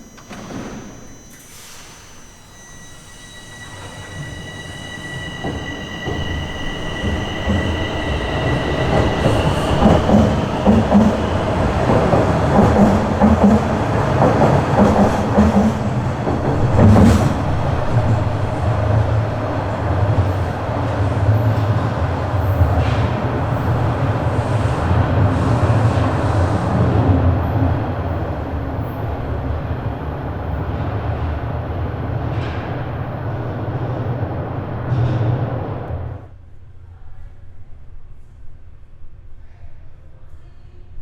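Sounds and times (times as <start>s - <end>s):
subway train wheels on rail: 0.0s - 36.4s.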